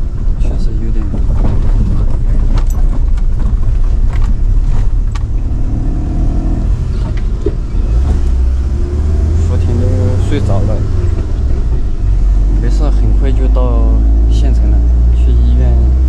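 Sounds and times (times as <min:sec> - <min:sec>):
vehicle engine rumbling: 0:00.0 - 0:16.0
load rattling and knocking: 0:00.8 - 0:05.4.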